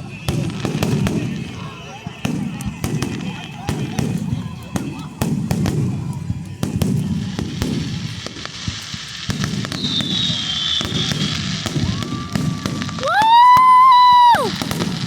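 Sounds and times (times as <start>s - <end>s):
high firework whistle: 0.0s - 5.0s, 7.3s - 15.0s
fireworks bangs and crackles: 0.0s - 15.0s
low crowd murmur: 0.0s - 15.0s.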